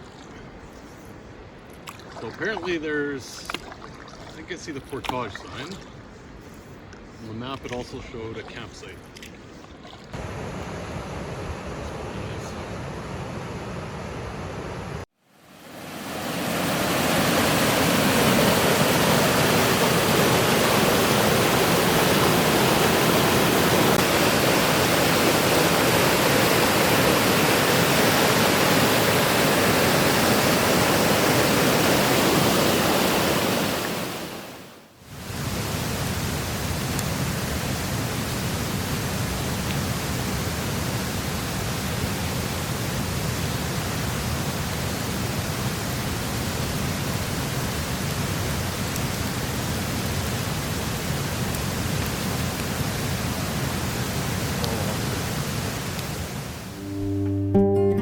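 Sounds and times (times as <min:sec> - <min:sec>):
waterfall rushing: 0:15.4 - 0:57.1.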